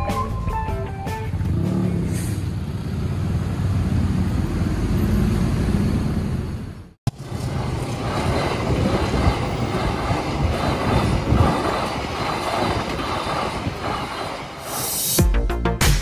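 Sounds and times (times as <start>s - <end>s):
train wheels running on rails: 4.4s - 15.2s.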